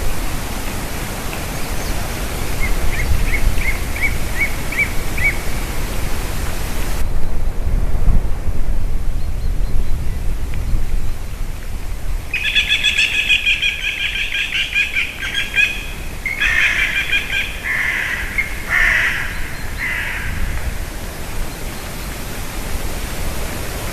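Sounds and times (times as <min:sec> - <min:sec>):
wild birds calling: 0:00.4 - 0:07.0, 0:12.3 - 0:22.6.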